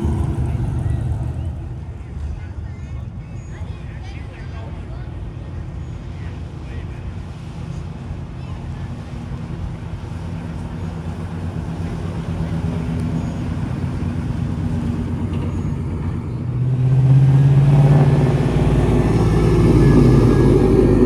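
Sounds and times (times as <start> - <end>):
cars driving past: 0.0 - 3.3, 9.2 - 21.0.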